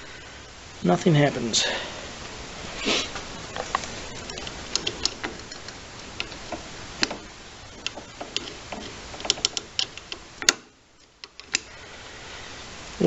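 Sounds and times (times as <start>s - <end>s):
steady hiss: 0.0s - 13.0s
light clicks and ticks: 3.5s - 11.7s.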